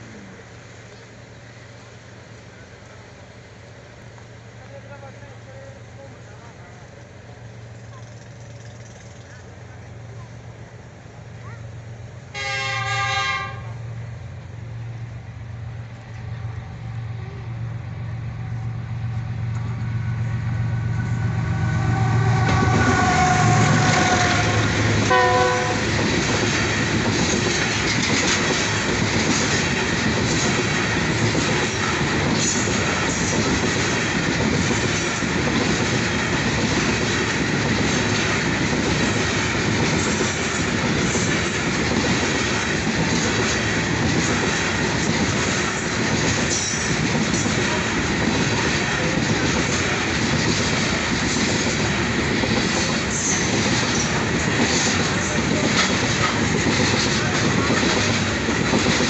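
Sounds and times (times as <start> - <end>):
locomotive engine hum: 0.0 - 59.0
wheels clacking over rail joints: 7.7 - 10.2, 20.8 - 59.0
train horn blasts: 12.3 - 13.8, 21.0 - 26.0
wagons rumbling past: 13.5 - 59.0.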